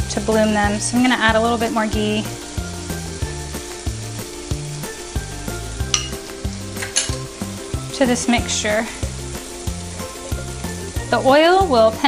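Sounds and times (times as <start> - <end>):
background music with bass line: 0.0 - 12.0
spices sizzling in a skillet: 0.0 - 12.0.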